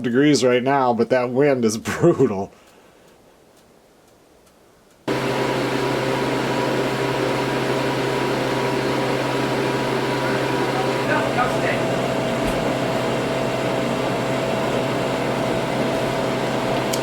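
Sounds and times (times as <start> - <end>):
machine humming: 5.1 - 17.0.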